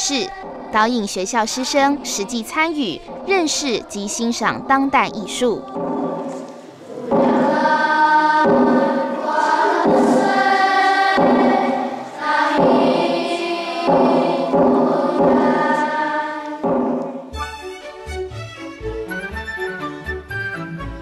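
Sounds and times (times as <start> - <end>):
choir singing long notes: 5.1 - 17.4.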